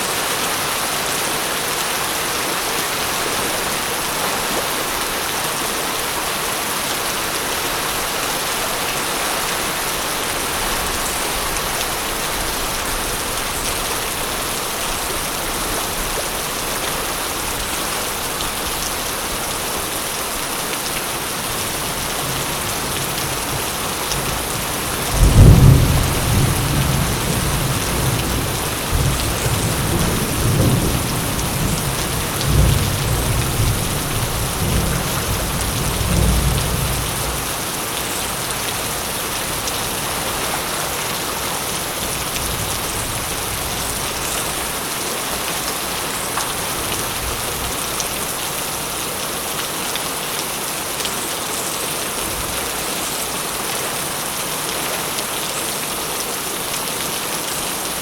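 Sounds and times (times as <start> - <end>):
heavy rain falling: 0.0 - 58.0
thunderclap with rolling rumble: 24.3 - 37.4.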